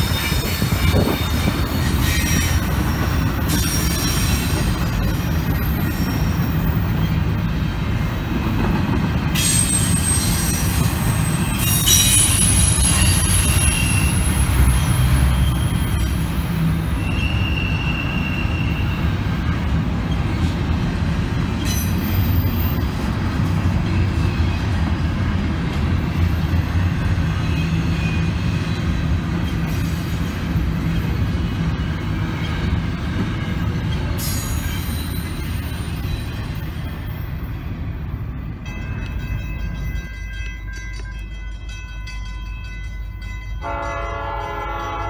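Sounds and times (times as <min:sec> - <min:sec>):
train cars rumbling past: 0:00.0 - 0:45.0
high-pitched wheel squeals: 0:09.4 - 0:19.1, 0:34.2 - 0:37.2.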